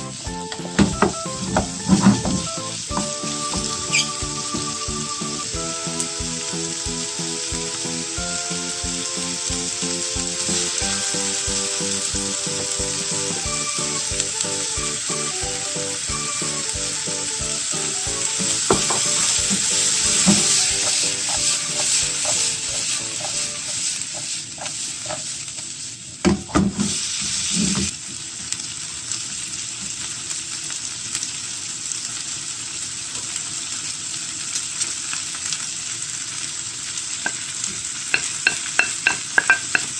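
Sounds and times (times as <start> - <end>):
background music with a beat: 0.0 - 23.9
food sizzling in a frying pan: 0.0 - 39.9
spatula scraping pan: 18.3 - 25.5.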